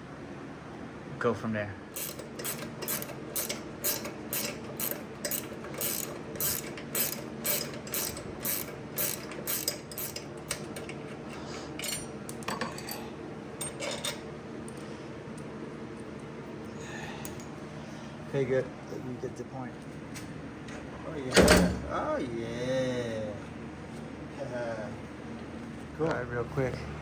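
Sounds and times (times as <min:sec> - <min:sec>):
ratchet wrench clicking: 0:02.0 - 0:10.9.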